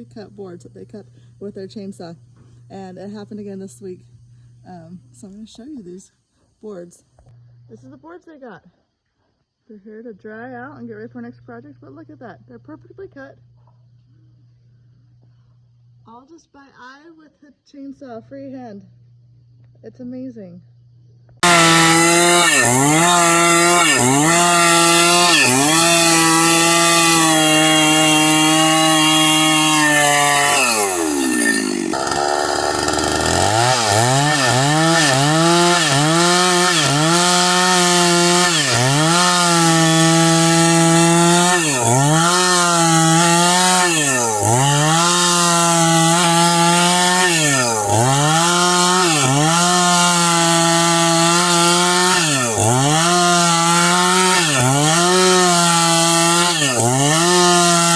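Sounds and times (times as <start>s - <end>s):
chainsaw cutting a log: 0.0s - 4.0s, 21.4s - 57.9s.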